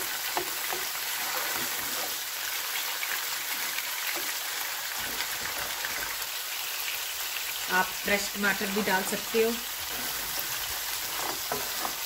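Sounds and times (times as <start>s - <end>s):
food sizzling in hot oil: 0.0s - 12.0s
spoon scraping and tapping pan: 11.1s - 12.0s.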